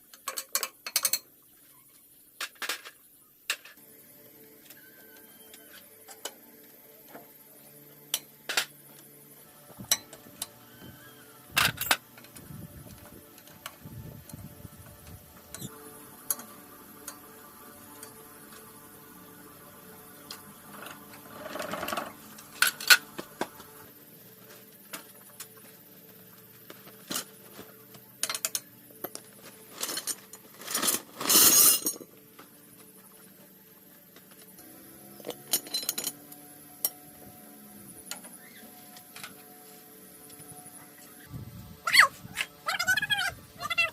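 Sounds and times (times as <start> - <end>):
soft background music: 3.8 - 43.9
metal tools clinking: 28.2 - 32.2, 35.4 - 36.2.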